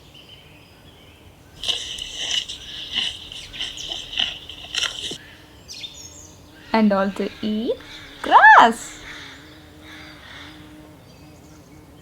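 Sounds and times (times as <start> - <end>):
horse chewing a carrot: 1.6 - 5.2.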